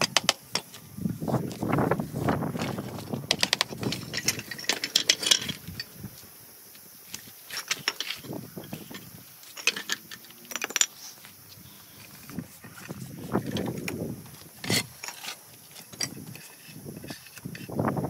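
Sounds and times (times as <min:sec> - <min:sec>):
stone and tools clicking: 0:14.6 - 0:17.8.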